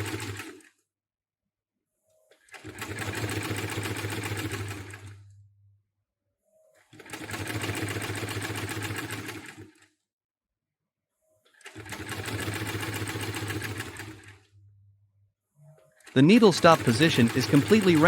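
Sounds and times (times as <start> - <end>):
industrial sewing machine stitching: 0.0 - 0.7, 2.4 - 5.2, 6.8 - 9.9, 11.5 - 14.5, 16.0 - 18.0.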